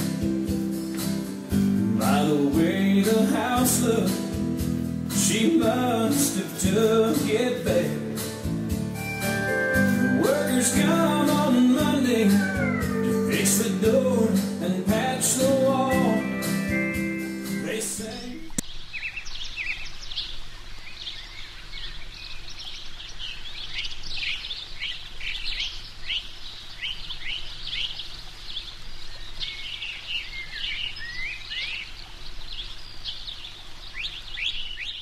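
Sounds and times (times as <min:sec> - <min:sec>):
birds chirping: 0:09.0 - 0:35.0.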